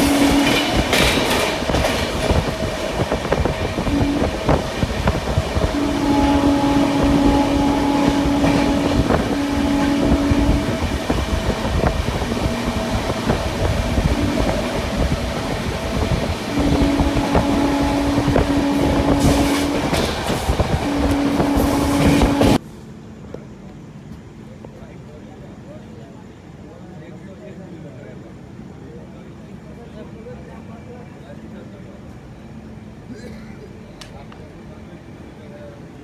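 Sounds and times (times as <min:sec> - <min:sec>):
train wheels rumbling on rails: 0:00.0 - 0:25.2.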